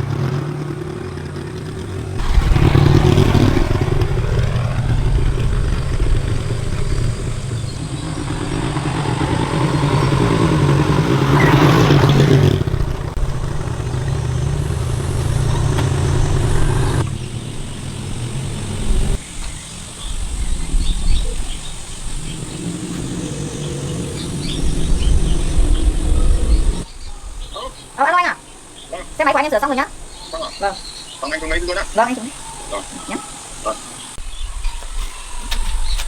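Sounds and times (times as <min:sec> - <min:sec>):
motorcycle engine revving: 0:00.0 - 0:27.7.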